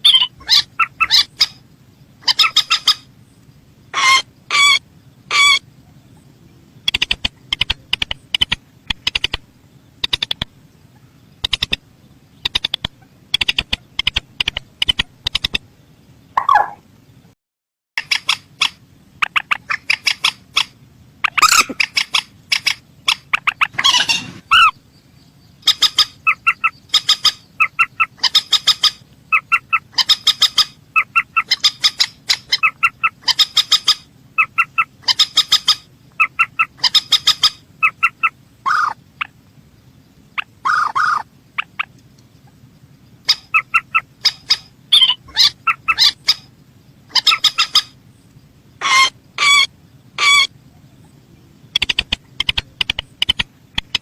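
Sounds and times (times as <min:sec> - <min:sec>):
harsh bird call: 0:00.0 - 0:01.6, 0:02.2 - 0:03.1, 0:03.9 - 0:05.9, 0:18.0 - 0:24.8, 0:25.6 - 0:39.3, 0:40.4 - 0:41.9, 0:43.2 - 0:46.5, 0:48.8 - 0:50.5
rail bird calling: 0:00.0 - 0:16.9, 0:18.0 - 0:54.0.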